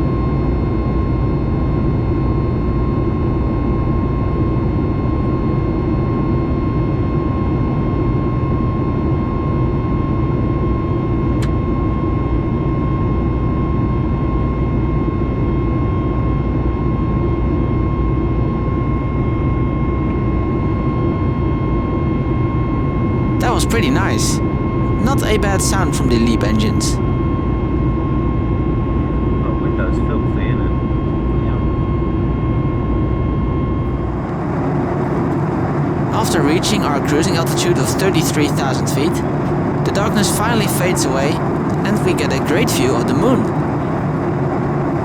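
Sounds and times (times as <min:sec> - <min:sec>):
steady high engine whine: 0:22.8 - 0:27.4, 0:33.8 - 0:45.0
aircraft cabin engine rumble: 0:22.9 - 0:27.4, 0:33.9 - 0:45.0.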